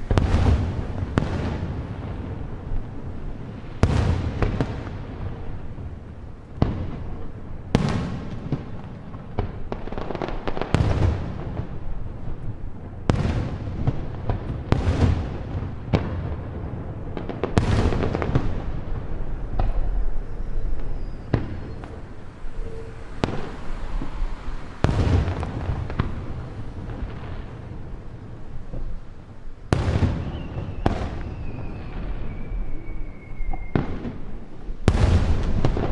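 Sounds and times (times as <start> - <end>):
fireworks booming and cracking: 0.0 - 35.9
whistle gliding downward: 20.3 - 24.4, 30.4 - 33.8.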